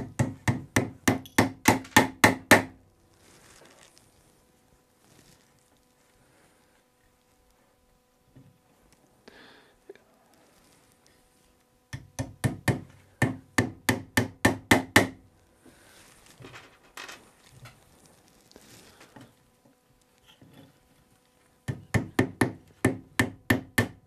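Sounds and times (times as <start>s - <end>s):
tack hammer tapping: 0.0s - 2.7s.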